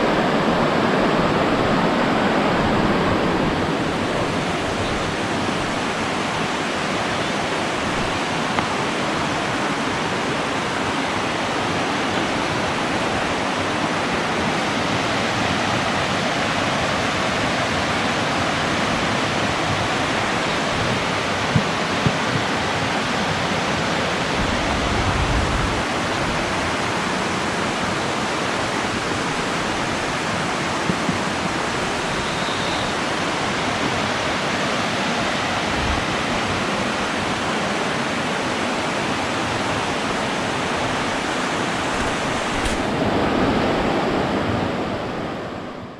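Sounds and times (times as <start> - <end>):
rush of flowing water: 0.0 - 45.9.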